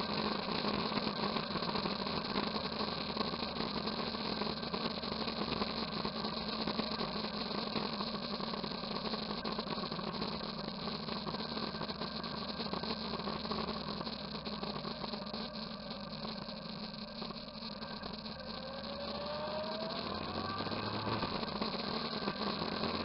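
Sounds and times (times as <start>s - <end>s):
motorcycle engine running: 10.0s - 23.0s.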